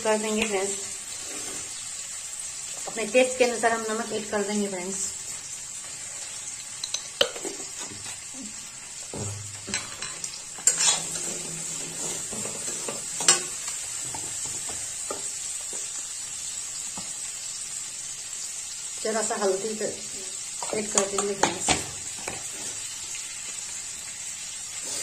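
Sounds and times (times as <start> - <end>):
potatoes sizzling in oil: 0.0 - 25.0
metal spoon scraping and knocking pan: 9.1 - 15.3.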